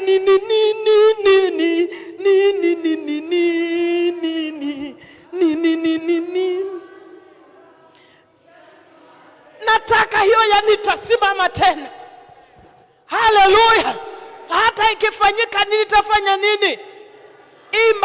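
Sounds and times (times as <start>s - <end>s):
woman singing unaccompanied: 0.0s - 7.5s.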